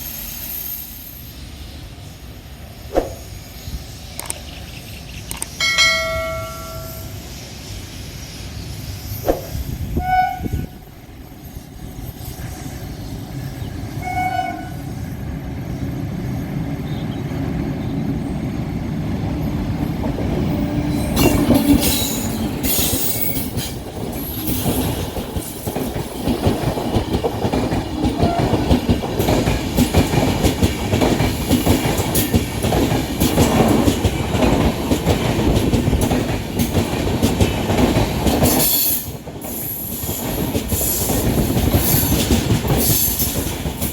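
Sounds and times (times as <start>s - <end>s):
train horn blasts: 9.9s - 10.9s, 14.0s - 14.9s, 28.2s - 28.7s
train wheels clattering over rails: 15.6s - 43.9s.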